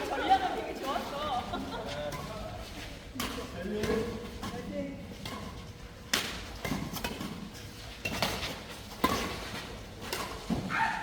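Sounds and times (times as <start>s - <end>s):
racket striking shuttlecock: 5.2s - 10.8s.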